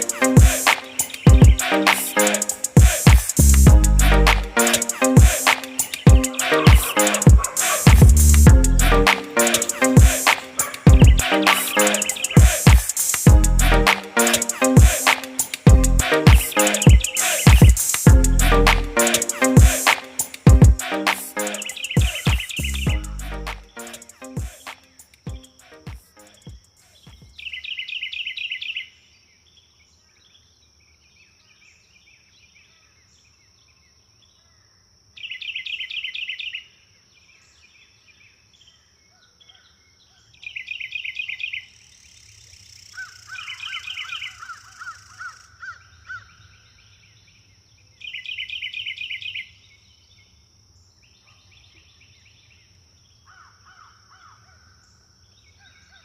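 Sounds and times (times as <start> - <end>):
birds chattering: 0.0 - 24.2
thin high whine: 0.0 - 24.7.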